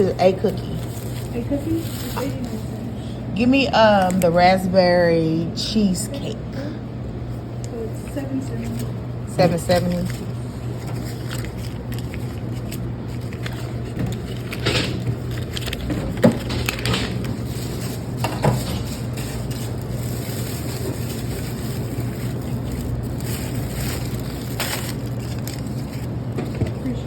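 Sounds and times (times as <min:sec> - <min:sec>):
steady low hum: 0:00.0 - 0:27.0
knocks and rustles from handling: 0:13.3 - 0:19.8.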